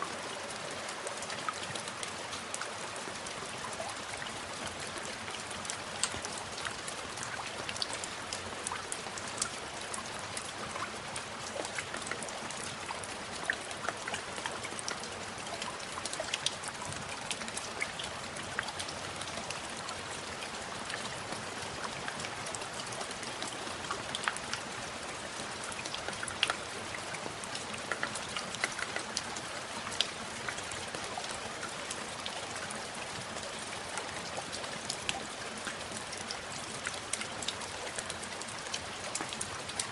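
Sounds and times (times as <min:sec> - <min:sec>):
raindrops ticking on a surface: 0:00.0 - 0:39.9
steady rain falling: 0:00.0 - 0:39.9.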